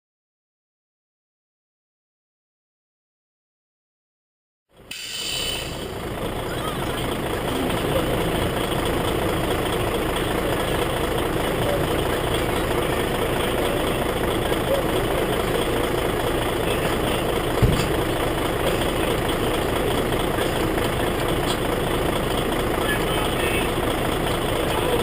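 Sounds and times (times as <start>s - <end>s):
heavy truck engine idling: 4.7s - 25.0s
low thump: 17.6s - 18.0s.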